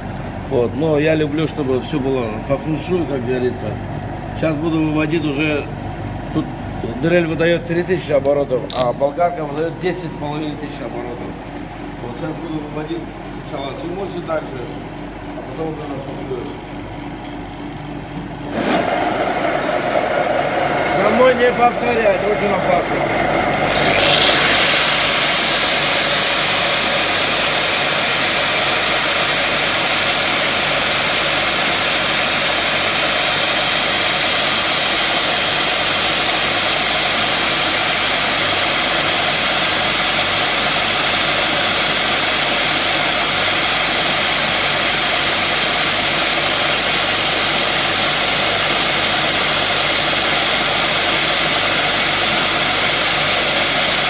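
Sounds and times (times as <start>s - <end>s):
power tools hissing and whining: 23.3s - 54.0s.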